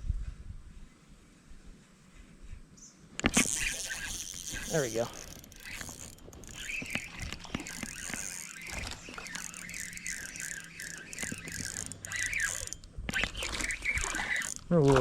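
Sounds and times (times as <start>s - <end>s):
fishing reel clicking: 3.2s - 15.0s.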